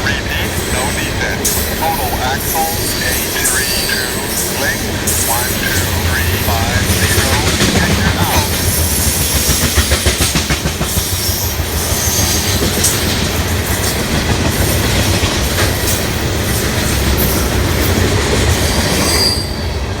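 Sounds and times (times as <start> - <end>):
train rumble: 0.0 - 20.0
train wheels clicking over rail joints: 4.4 - 19.1.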